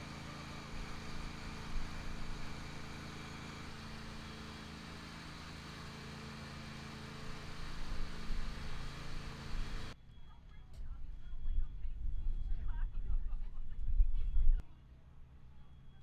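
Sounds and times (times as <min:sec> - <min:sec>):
engine running with low hum: 0:00.0 - 0:16.0.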